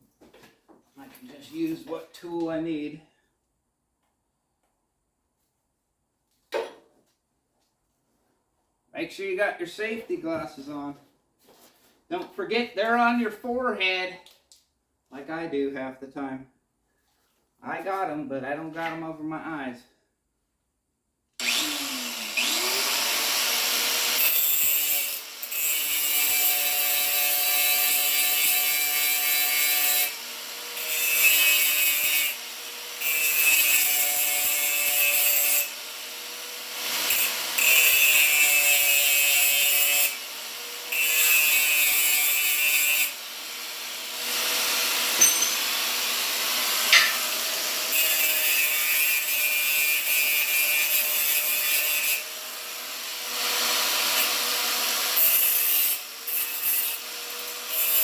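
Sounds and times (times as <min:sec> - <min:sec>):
power tool motor whine: 0:21.4 - 0:24.4.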